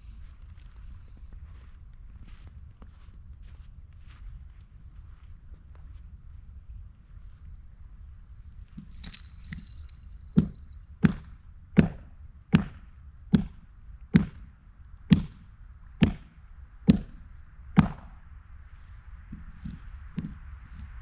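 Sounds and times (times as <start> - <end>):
sharp hard blows with ringing: 10.4 - 13.6, 14.2 - 14.5, 15.1 - 17.2, 17.8 - 18.2.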